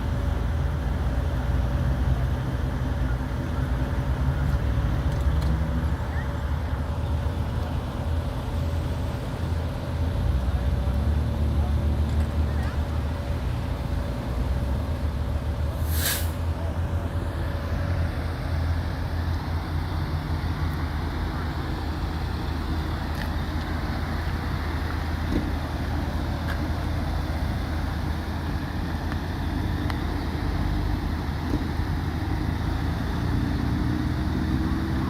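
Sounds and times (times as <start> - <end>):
low rumble of road vehicles: 0.0 - 35.0
sharp hiss: 15.8 - 16.5.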